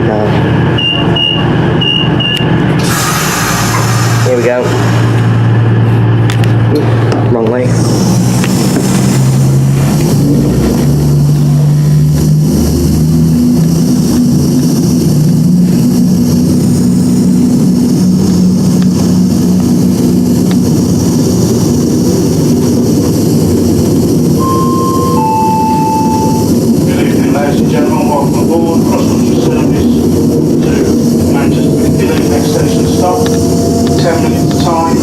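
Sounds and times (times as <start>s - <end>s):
train diesel engines running hard: 0.0s - 35.0s
two-note falling chime: 24.4s - 26.6s.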